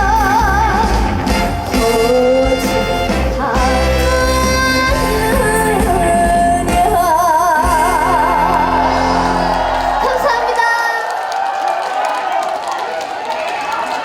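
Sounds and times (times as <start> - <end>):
woman singing: 0.0 - 9.3
band accompaniment: 0.0 - 10.6.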